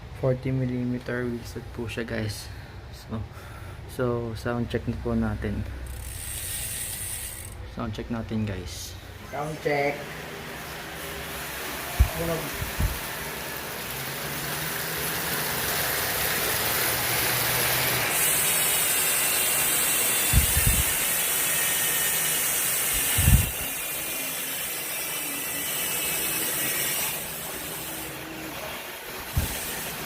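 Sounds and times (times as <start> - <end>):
bicycle freehub ratchet buzzing: 5.7 - 7.7, 12.0 - 30.0.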